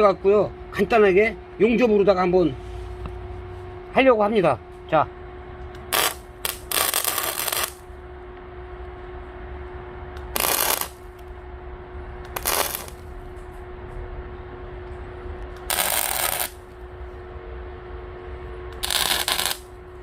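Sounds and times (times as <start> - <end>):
steady hum: 0.0 - 20.0
arc welder bursts: 5.8 - 7.9, 10.2 - 11.3, 12.2 - 13.2, 15.5 - 16.8, 18.7 - 20.0.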